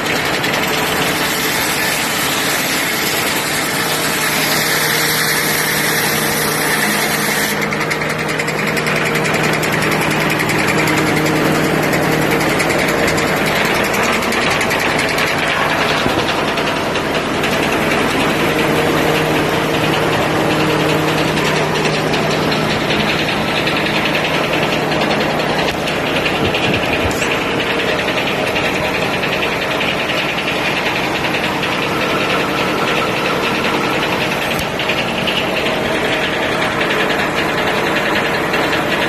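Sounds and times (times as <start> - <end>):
diesel engine running steadily: 0.0 - 39.0.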